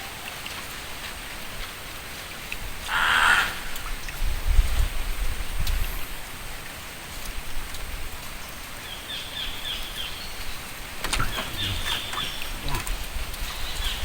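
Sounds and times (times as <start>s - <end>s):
riverside ambience hiss: 8.4s - 14.0s.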